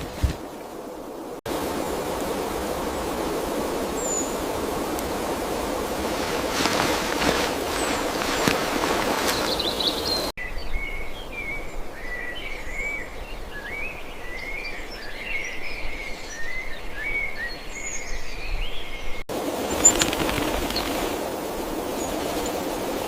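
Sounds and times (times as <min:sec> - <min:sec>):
small birds chirping: 0:06.5 - 0:10.3, 0:13.8 - 0:21.2.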